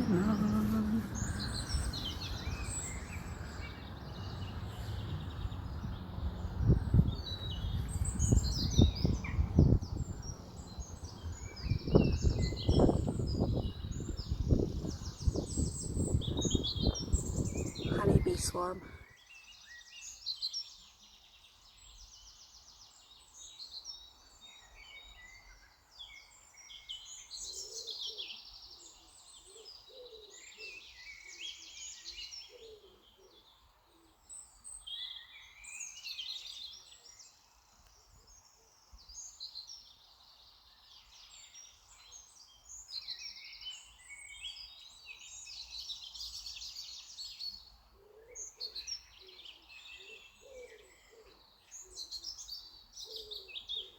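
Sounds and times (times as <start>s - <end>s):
birds chirping and trilling: 0.0s - 19.0s.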